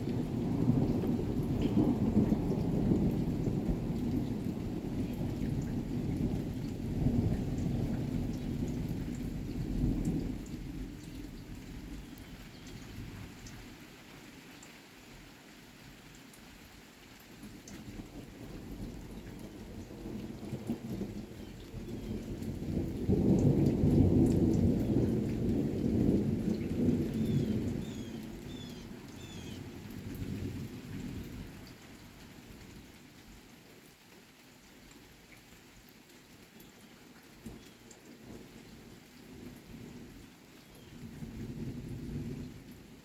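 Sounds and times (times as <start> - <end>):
rolling thunder rumble: 0.0 - 12.4, 18.0 - 31.6, 41.0 - 42.7
rain falling: 0.0 - 43.0.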